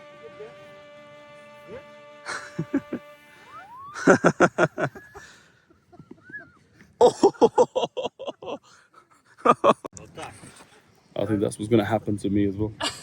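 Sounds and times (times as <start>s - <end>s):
person laughing: 2.2s - 3.2s, 3.8s - 8.6s, 9.4s - 9.9s.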